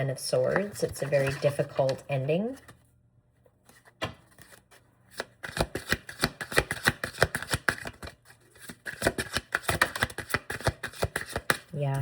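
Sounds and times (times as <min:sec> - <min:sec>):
cards being shuffled: 0:03.7 - 0:11.7.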